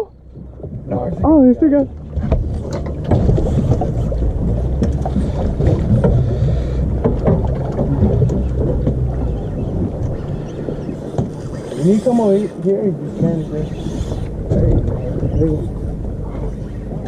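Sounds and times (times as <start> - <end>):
boat motor humming: 0.0 - 17.0
knocks and clicks: 7.0 - 9.3.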